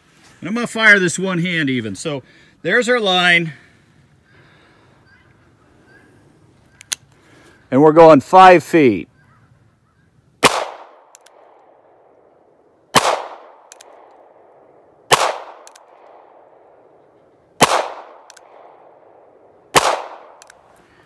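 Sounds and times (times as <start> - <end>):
revolver gunshots: 10.4 - 12.3, 12.9 - 17.0, 17.6 - 20.7
revolver hammer cocking clicks: 10.5 - 11.7, 13.0 - 14.4, 15.1 - 16.2, 17.6 - 18.7, 19.8 - 20.6.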